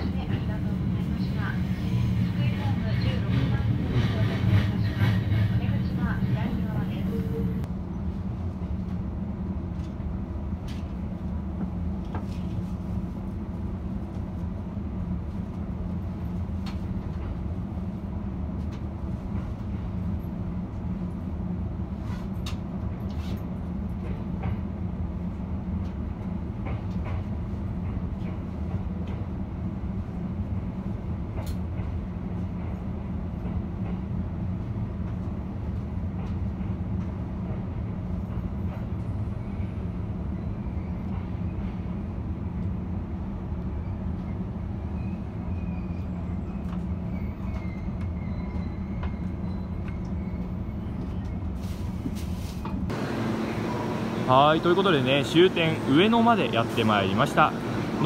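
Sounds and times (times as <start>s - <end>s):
train running rumble: 0.0s - 58.0s.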